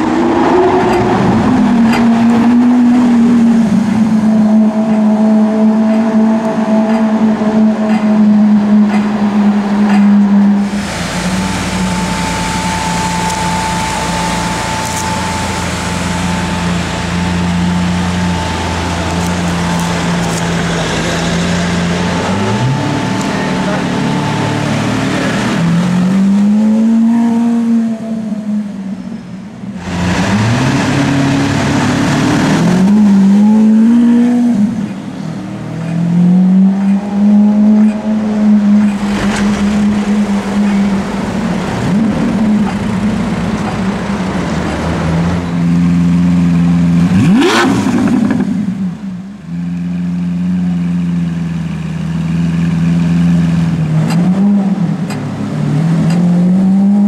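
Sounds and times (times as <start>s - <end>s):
loud passing rush: 0.0s - 28.7s
car engine accelerating and revving: 0.0s - 57.0s.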